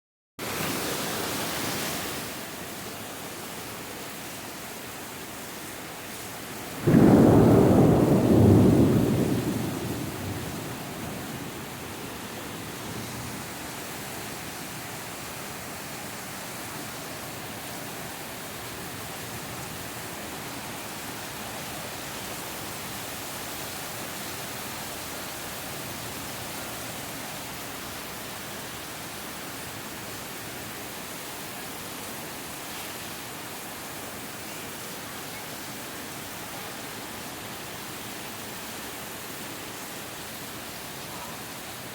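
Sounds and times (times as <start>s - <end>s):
rain hissing: 3.7s - 28.7s
thunder clap rumbling: 6.8s - 12.6s.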